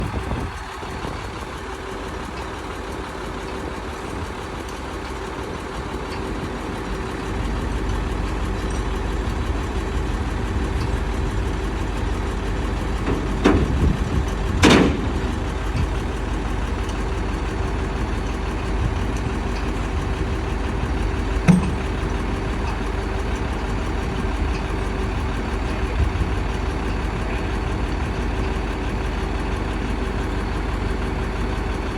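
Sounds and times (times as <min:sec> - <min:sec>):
machine engine idling: 0:00.0 - 0:31.9
sharp metallic knocks: 0:13.0 - 0:15.5, 0:21.4 - 0:22.2.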